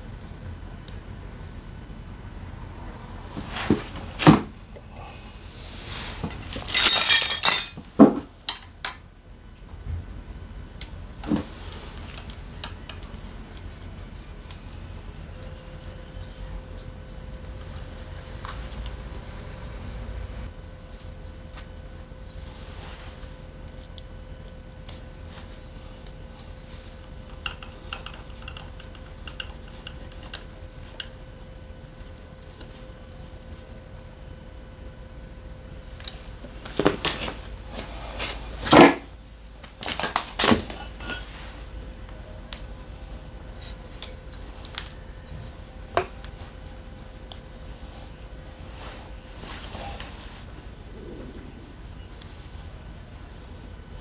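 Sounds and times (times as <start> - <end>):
faint steady hum: 0.0 - 54.0
metal tools knocking and clinking: 6.2 - 9.0, 39.8 - 41.2
loud jangling rattle: 6.3 - 7.8.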